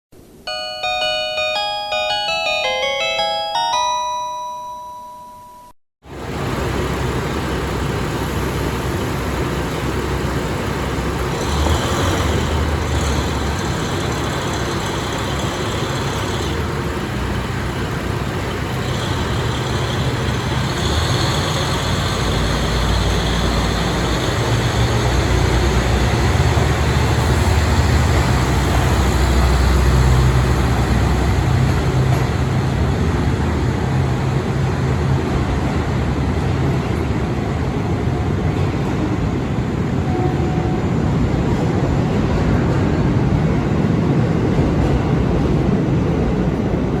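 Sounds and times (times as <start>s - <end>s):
station chime: 0.4s - 5.8s, 40.1s - 41.3s
diesel railcar engine drone: 6.0s - 47.0s.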